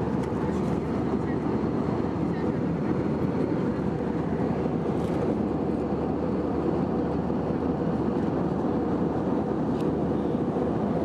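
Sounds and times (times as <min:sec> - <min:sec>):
airplane cabin engine roar: 0:00.0 - 0:11.0.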